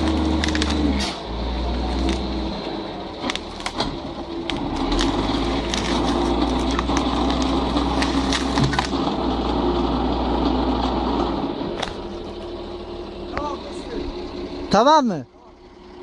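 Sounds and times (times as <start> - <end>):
wood cracking and splintering: 0.0 - 9.5.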